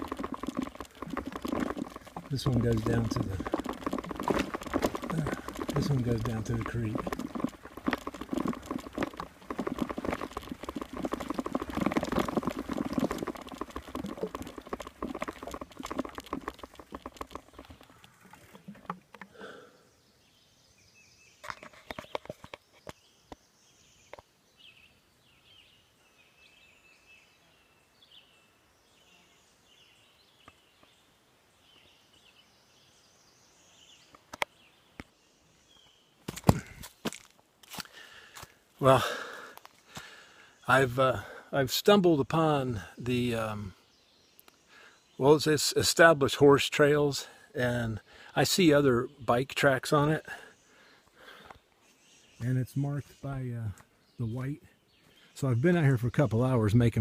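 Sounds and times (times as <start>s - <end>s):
bicycle rattling over sticks: 0.0s - 19.5s.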